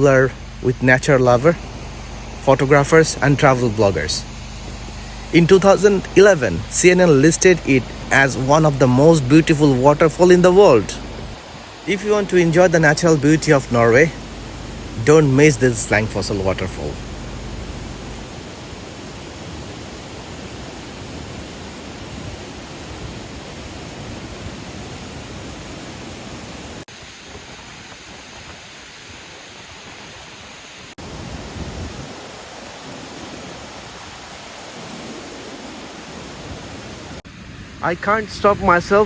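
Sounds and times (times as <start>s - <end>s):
waterfall rushing: 0.0s - 28.5s.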